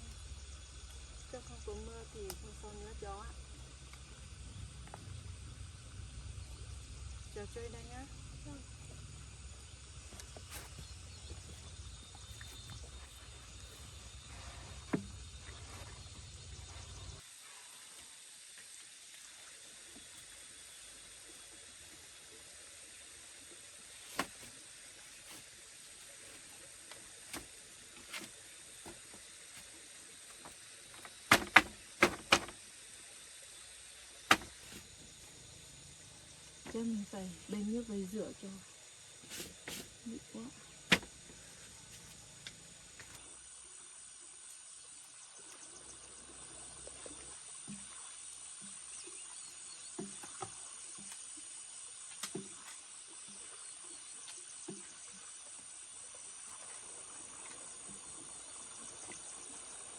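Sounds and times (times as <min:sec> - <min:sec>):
insect chirring: 0:00.0 - 0:17.2, 0:18.2 - 0:59.9
faint hiss: 0:00.0 - 0:46.7
light knocks and clunks: 0:30.3 - 0:32.6, 0:40.9 - 0:42.2
sharp knocks: 0:31.0 - 0:32.6, 0:34.3 - 0:34.8, 0:40.9 - 0:41.1.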